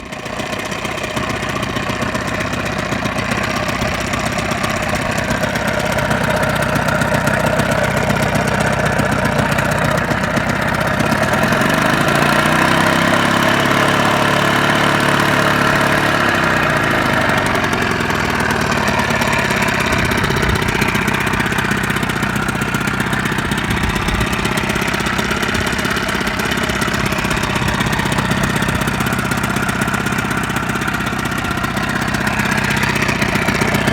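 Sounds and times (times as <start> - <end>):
outboard motor running: 0.0 - 33.9.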